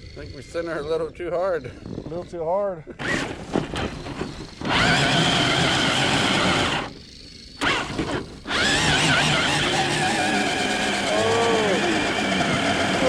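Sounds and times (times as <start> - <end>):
electric toy truck motors whining: 2.9 - 13.0.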